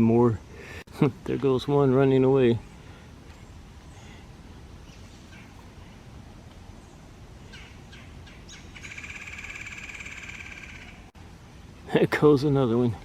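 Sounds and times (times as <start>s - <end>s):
bird chirps: 6.7s - 11.1s
bird rapid trilling call: 7.5s - 11.1s.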